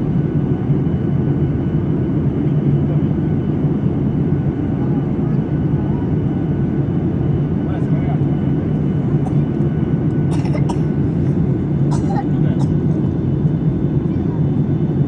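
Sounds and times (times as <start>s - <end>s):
jet engine cabin rush: 7.7s - 14.2s.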